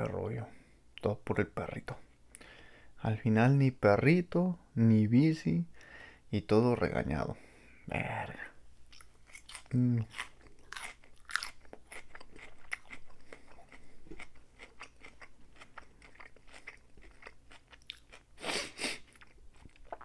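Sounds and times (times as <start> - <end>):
chewing salad with wet crunches: 8.9 - 20.0.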